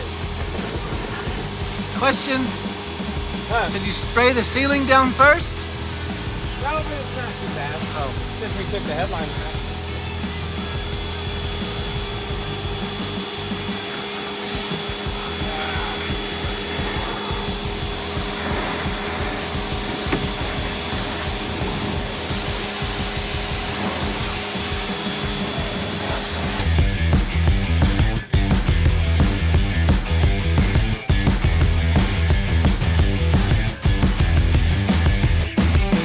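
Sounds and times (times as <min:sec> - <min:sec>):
pressure washer spraying: 0:00.0 - 0:26.7.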